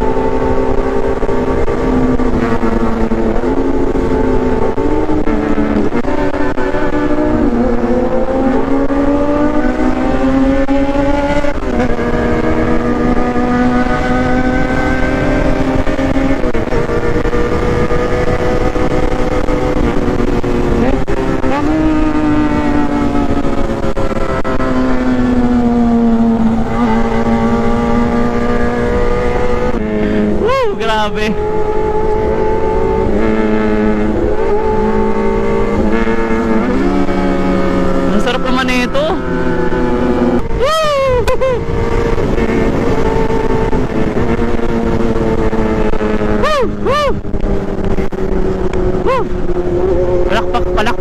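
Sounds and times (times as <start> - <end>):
motorcycle engine at high revs: 0.0 - 51.0
person whooping: 40.6 - 41.6, 46.4 - 47.2, 49.1 - 49.3.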